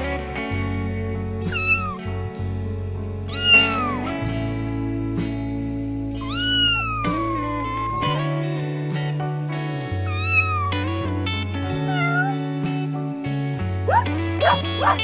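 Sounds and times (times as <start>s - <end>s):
background music: 0.0s - 15.0s
cat meowing: 1.5s - 2.1s, 3.3s - 4.1s, 6.2s - 8.3s, 10.1s - 11.0s, 11.8s - 12.5s, 13.9s - 15.0s.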